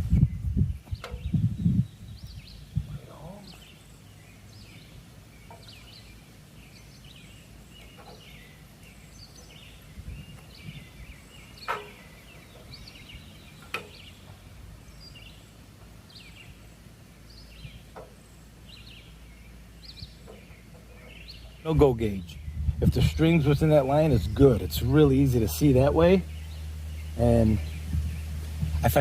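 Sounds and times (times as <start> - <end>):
birds chirping: 0.0 - 29.0
sharp knocks: 11.6 - 12.1.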